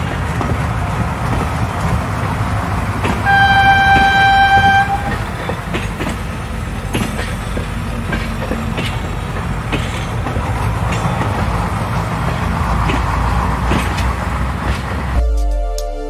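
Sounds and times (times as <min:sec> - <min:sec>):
train rumbling past: 0:00.0 - 0:15.2
electronic music: 0:15.2 - 0:16.0.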